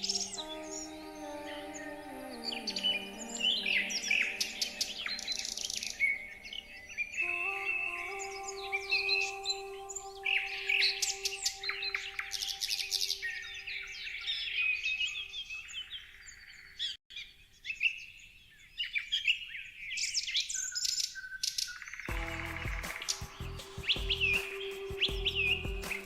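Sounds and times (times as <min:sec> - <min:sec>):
low musical drone: 0:00.0 - 0:14.0, 0:22.1 - 0:26.0
birds chirping and singing: 0:00.0 - 0:26.0.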